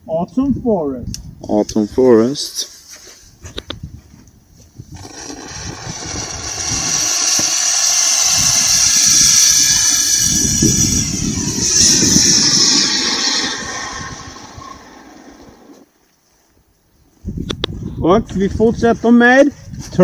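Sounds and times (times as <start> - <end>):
firework fountain hissing: 5.0 - 15.8.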